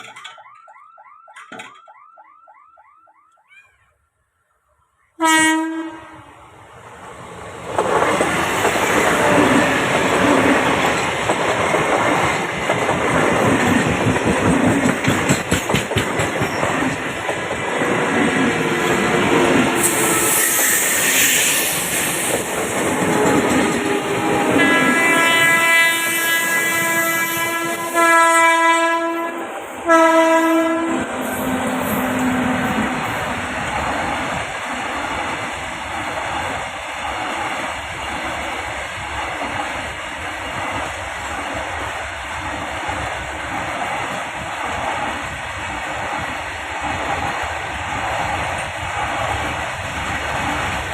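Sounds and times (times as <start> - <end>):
train wheels clattering on rails: 0.0 - 0.4, 7.6 - 25.6
train horn blast: 5.2 - 6.3, 19.8 - 21.4, 23.2 - 33.2.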